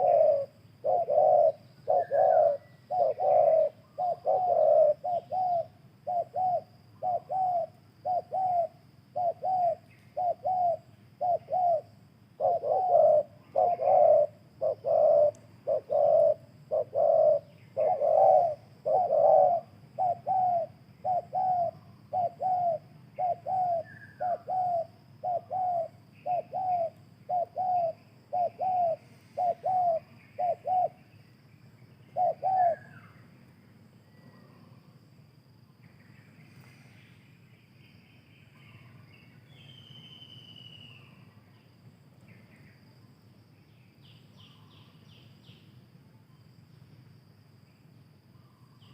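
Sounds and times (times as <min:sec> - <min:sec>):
doves cooing: 0:00.0 - 0:31.0, 0:32.1 - 0:33.2
faint small-bird chirps: 0:00.0 - 0:35.0, 0:35.6 - 0:47.1, 0:47.7 - 0:48.9.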